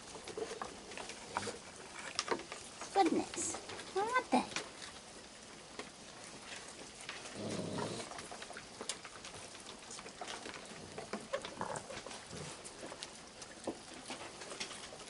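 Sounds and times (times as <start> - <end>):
raccoons chewing and clicking: 0.0 - 15.0
low animal grumble: 7.2 - 8.2.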